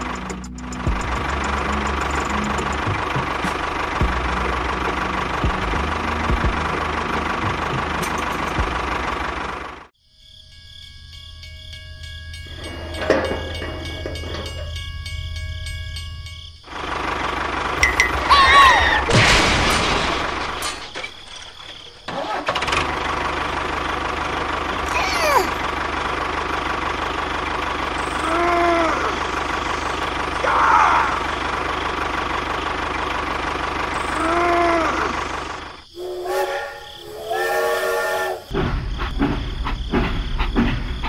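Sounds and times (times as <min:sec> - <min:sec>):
tractor engine running: 0:00.0 - 0:10.0, 0:11.6 - 0:37.3, 0:38.4 - 0:41.0
horn-like tone: 0:36.0 - 0:38.5.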